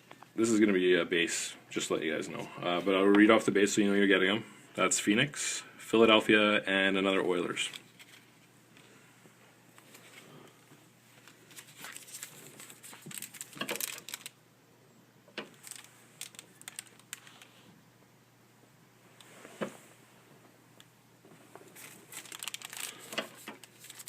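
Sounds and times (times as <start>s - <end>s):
foil wrapper crinkling: 11.3s - 14.4s, 15.4s - 17.7s, 21.7s - 24.0s.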